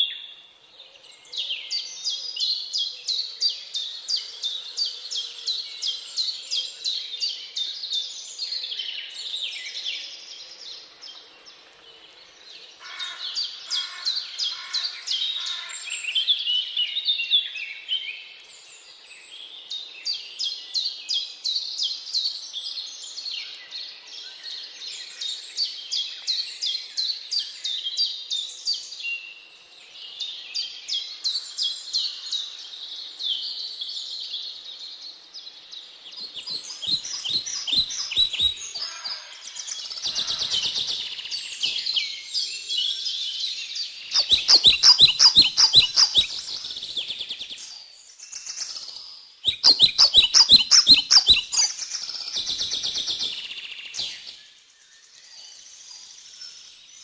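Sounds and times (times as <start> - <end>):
songbirds chirping: 0.0 - 57.0
lower repeated bird call: 36.2 - 42.3, 44.1 - 47.7, 49.4 - 54.4.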